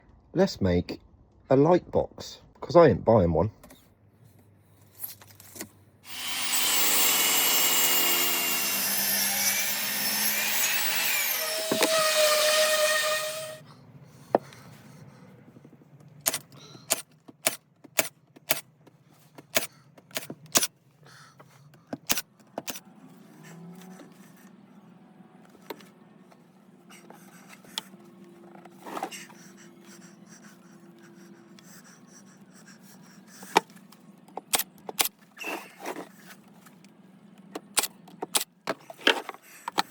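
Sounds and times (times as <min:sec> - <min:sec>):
power saw cutting wood: 0:06.0 - 0:13.6, 0:16.3 - 0:18.6, 0:34.4 - 0:36.0
sharp clicks and knocks: 0:16.0 - 0:20.7.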